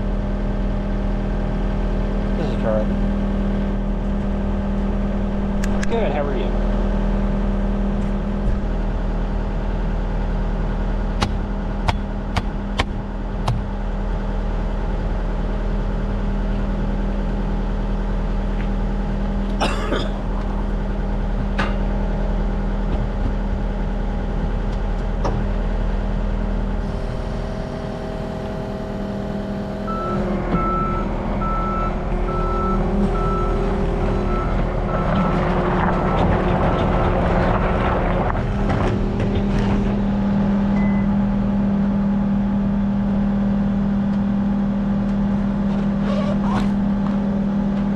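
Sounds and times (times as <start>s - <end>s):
vehicle engine running: 0.0s - 47.9s
backup alarm beeping: 26.8s - 35.5s, 40.7s - 41.2s.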